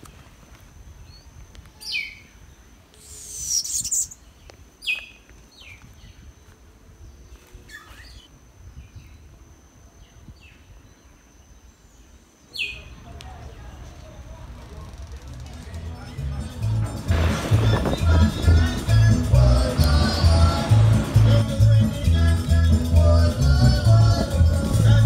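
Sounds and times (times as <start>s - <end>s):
high bird chirps sliding downward: 3.0s - 4.2s.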